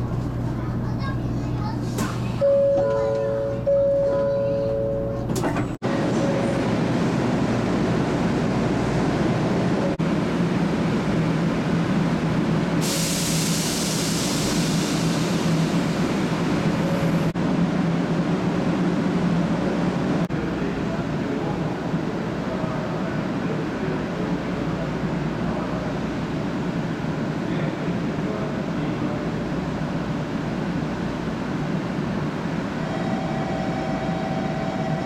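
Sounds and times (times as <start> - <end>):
train low hum: 0.0 - 35.0.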